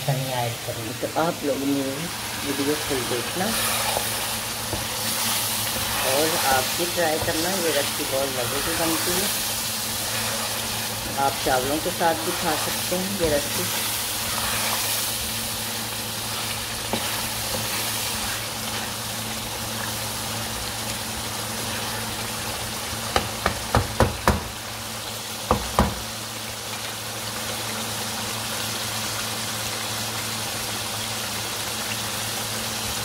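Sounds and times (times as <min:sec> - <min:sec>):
food sizzling in a pan: 0:00.0 - 0:33.0
spatula knocking on pan: 0:23.1 - 0:24.6, 0:25.5 - 0:26.0.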